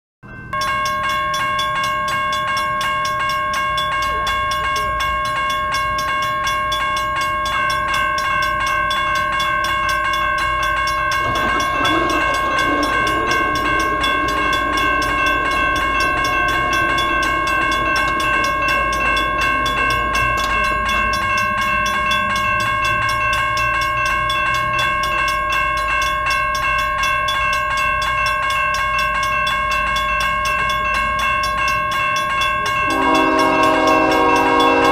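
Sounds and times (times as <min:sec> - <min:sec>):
high ringing tone: 0:00.3 - 0:34.9
train rumbling by: 0:00.5 - 0:34.9
wavering rumble: 0:10.3 - 0:22.9.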